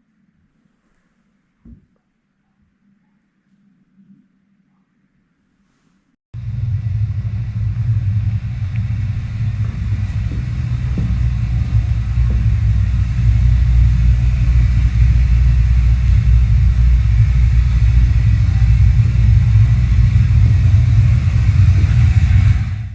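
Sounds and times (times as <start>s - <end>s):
loud low rumble: 6.4s - 22.9s.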